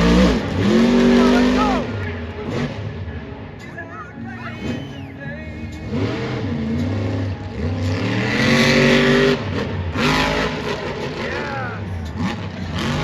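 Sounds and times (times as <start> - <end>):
truck engine revving hard: 0.0 - 3.3, 4.3 - 13.0.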